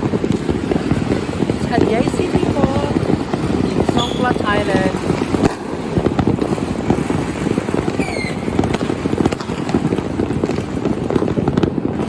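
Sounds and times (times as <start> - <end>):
city noise: 0.0 - 12.0
distant fireworks popping: 0.0 - 12.0.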